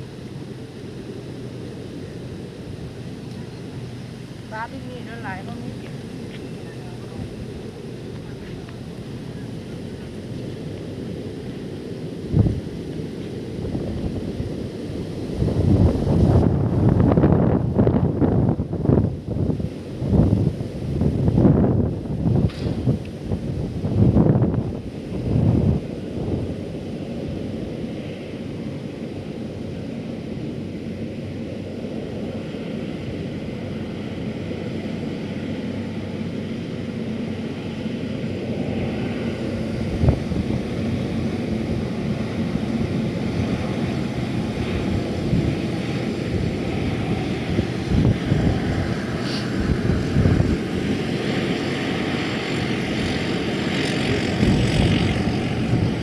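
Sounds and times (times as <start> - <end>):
motor drone: 0.0 - 56.0
wind buffeting microphone: 0.0 - 56.0.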